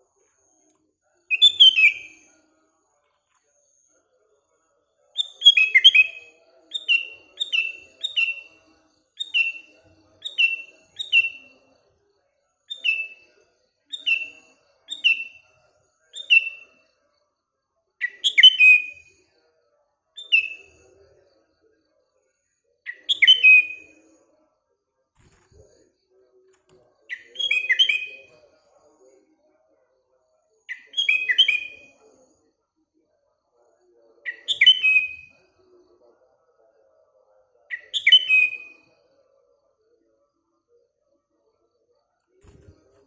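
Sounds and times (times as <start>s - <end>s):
bird whistled calls: 1.3s - 2.2s, 27.1s - 28.3s, 30.7s - 31.9s, 34.3s - 35.3s.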